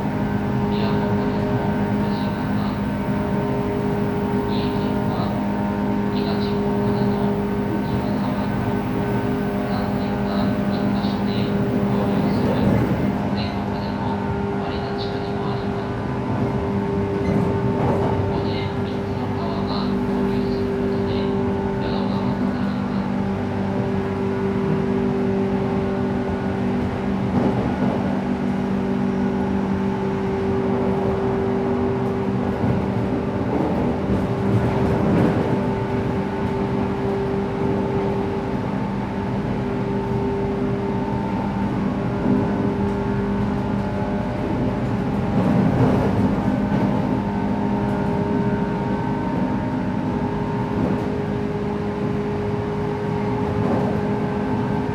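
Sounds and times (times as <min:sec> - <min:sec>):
train motor hum: 0:00.0 - 0:24.8
wheel-on-rail rumble: 0:00.0 - 0:54.9.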